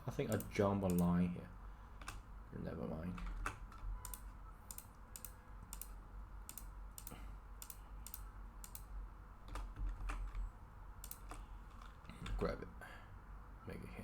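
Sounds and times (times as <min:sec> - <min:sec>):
faint low hum: 0:00.0 - 0:14.0
keyboard and mouse clicks: 0:00.3 - 0:01.1, 0:02.0 - 0:02.2, 0:03.2 - 0:12.5.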